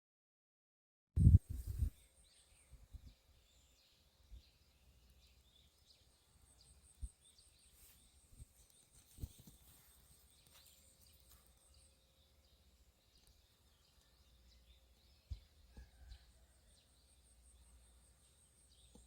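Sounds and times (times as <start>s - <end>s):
soft low thumps: 1.2s - 2.0s
faint bird chirps: 1.2s - 19.0s.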